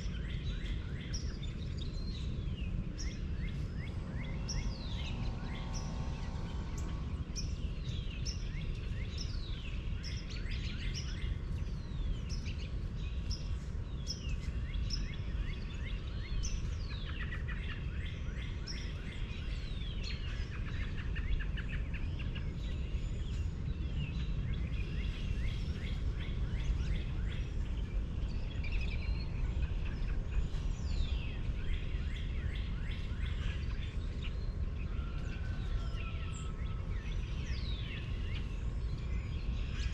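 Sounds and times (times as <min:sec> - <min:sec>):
birds chirping: 0:00.0 - 0:39.9
steady low rumble: 0:00.0 - 0:39.9.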